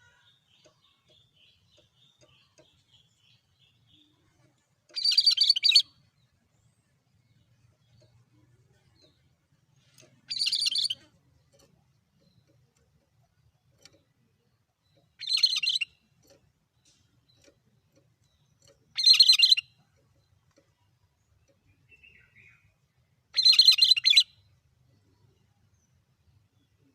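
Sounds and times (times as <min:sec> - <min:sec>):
songbird rapid call: 0:00.0 - 0:06.4, 0:09.8 - 0:11.2, 0:15.0 - 0:16.1, 0:18.9 - 0:19.9, 0:23.4 - 0:24.4.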